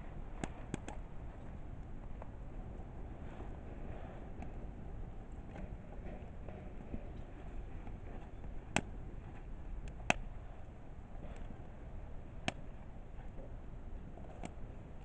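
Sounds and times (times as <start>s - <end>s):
fire low rumble: 0.0s - 15.0s
faint fire ticks: 0.3s - 15.0s
firewood crackling pops: 0.4s - 1.0s, 9.8s - 10.3s.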